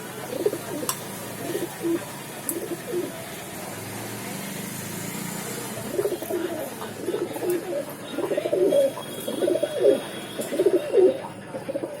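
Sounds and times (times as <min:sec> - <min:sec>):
pigeons cooing: 0:00.2 - 0:03.2, 0:05.8 - 0:12.0.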